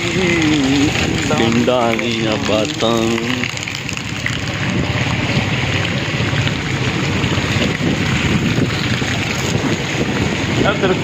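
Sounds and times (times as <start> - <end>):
heavy rain falling: 0.0 - 11.0
wind buffeting microphone: 3.5 - 11.0.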